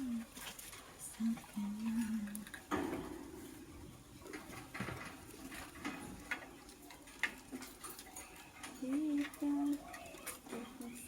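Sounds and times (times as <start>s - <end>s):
lovebirds chirping: 6.1s - 11.0s.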